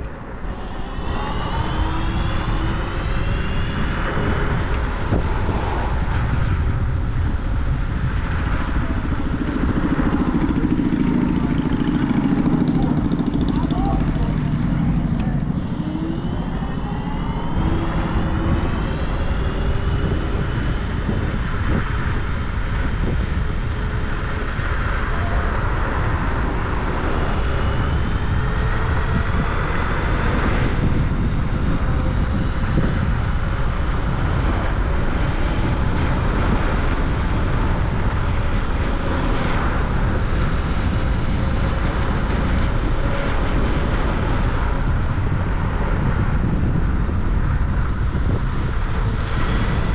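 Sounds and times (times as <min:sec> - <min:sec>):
motor whine: 0:00.0 - 0:49.9
wind rushing over microphone: 0:00.0 - 0:49.9.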